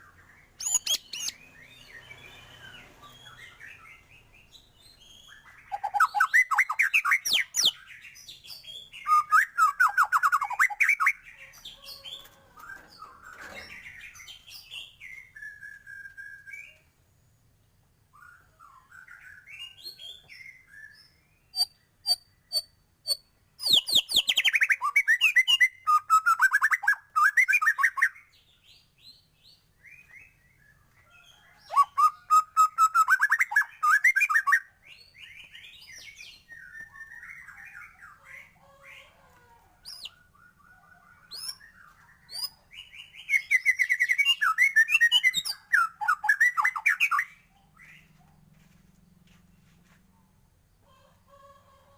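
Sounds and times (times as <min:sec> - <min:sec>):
bird singing trills: 0:00.0 - 0:16.9, 0:18.1 - 0:39.1, 0:39.8 - 0:48.2.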